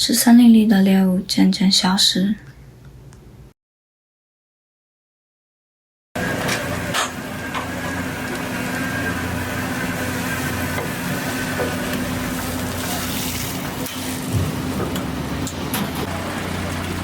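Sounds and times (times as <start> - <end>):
machine drone: 6.2 - 17.0.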